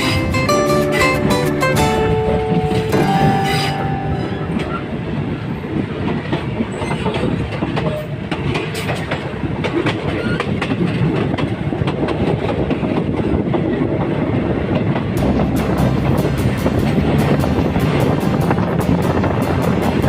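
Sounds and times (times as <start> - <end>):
train rumbling on track: 0.0 - 20.0
wheels clacking over rail joints: 0.0 - 20.0.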